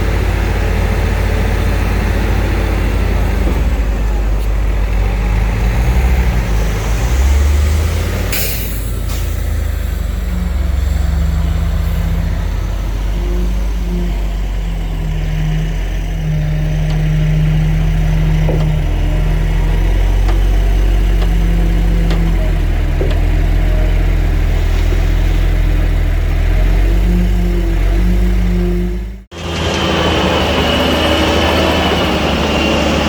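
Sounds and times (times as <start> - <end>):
heavy diesel engine rumbling: 0.0 - 33.0
faint knocks: 18.4 - 19.1, 20.2 - 23.6.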